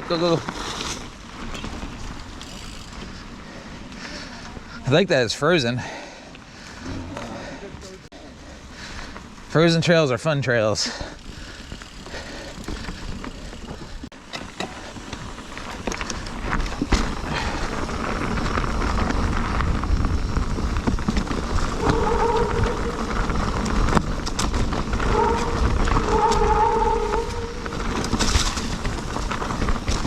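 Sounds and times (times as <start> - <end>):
mountain bike tyre noise: 0.0 - 30.0
bike rattles and knocks: 0.1 - 4.5, 10.9 - 30.0.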